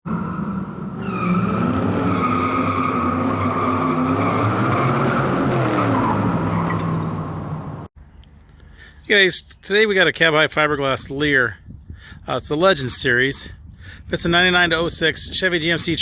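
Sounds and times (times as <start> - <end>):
car engine revving: 0.1 - 7.9.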